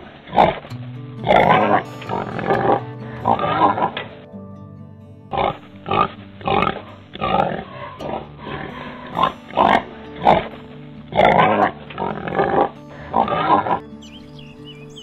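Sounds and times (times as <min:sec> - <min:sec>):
soft background music: 0:00.0 - 0:15.0
pig grunting: 0:01.2 - 0:03.9, 0:05.3 - 0:10.5, 0:11.1 - 0:13.8.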